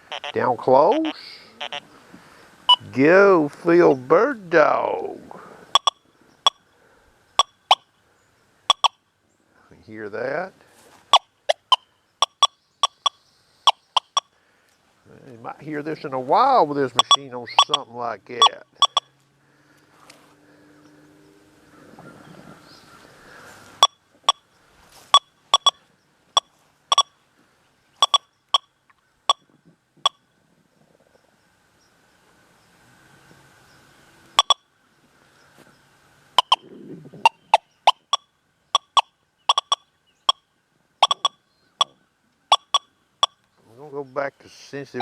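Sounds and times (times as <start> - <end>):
metal detector beeps: 0.0 - 1.8, 2.7 - 2.9, 5.7 - 6.7, 7.4 - 7.9, 8.7 - 9.0, 11.1 - 14.3, 16.9 - 19.1, 23.8 - 24.5, 25.1 - 27.2, 28.0 - 28.7, 29.3 - 30.3, 34.4 - 34.7, 36.4 - 36.6, 37.3 - 43.4.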